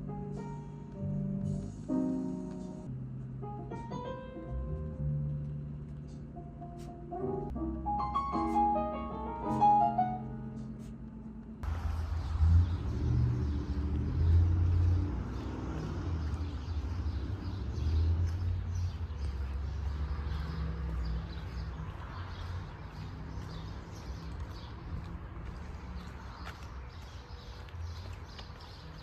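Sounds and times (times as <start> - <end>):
low rumble of traffic: 9.2 - 29.0.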